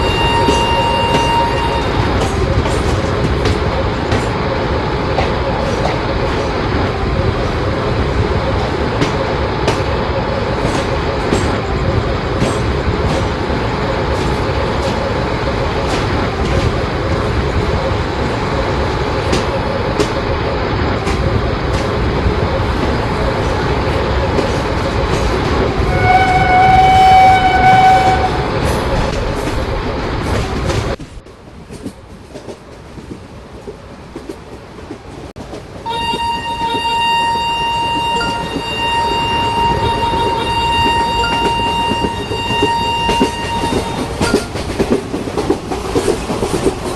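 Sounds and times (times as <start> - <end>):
train horn blast: 0.0 - 2.0, 25.8 - 28.6, 35.8 - 44.4
train rumbling on track: 0.0 - 46.9
wheels clacking over rail joints: 19.2 - 46.9.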